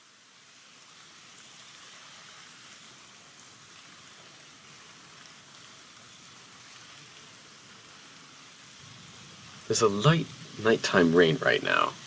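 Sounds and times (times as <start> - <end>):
faint rain patters: 0.0 - 12.0
light rain hiss: 0.0 - 12.0.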